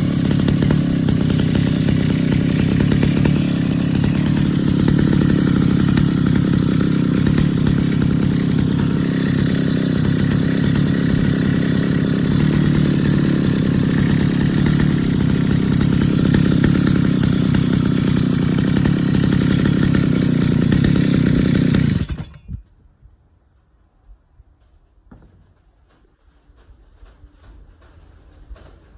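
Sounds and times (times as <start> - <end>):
two-stroke brush-cutter engine idling: 0.0 - 22.6.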